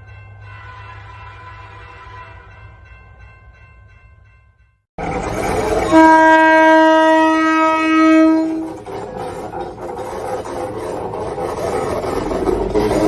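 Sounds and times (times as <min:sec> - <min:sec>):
train horn blast: 0:00.6 - 0:02.7, 0:05.6 - 0:08.8
train rumbling: 0:05.0 - 0:13.0.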